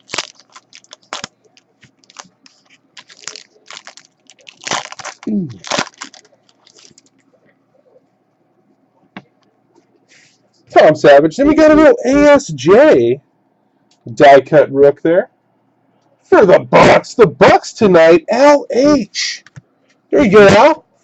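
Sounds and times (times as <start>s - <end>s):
wrapper crinkling: 0.0s - 7.3s.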